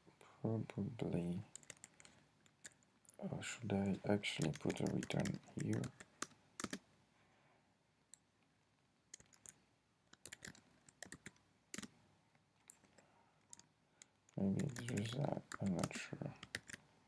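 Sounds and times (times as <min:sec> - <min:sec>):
computer keyboard typing: 0:01.5 - 0:02.8, 0:04.3 - 0:06.8, 0:09.1 - 0:11.9, 0:12.6 - 0:13.7, 0:14.3 - 0:16.8.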